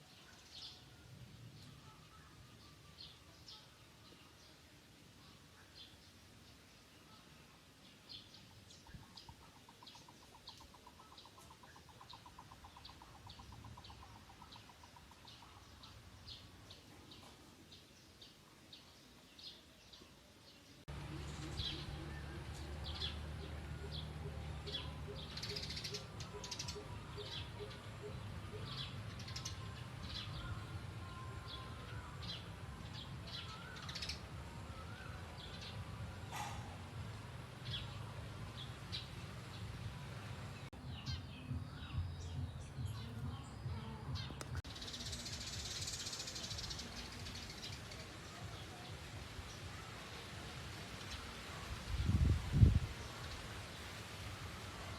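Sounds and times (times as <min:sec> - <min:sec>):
small birds chirping: 0:00.0 - 0:54.9
faint bird calls: 0:33.4 - 0:37.1.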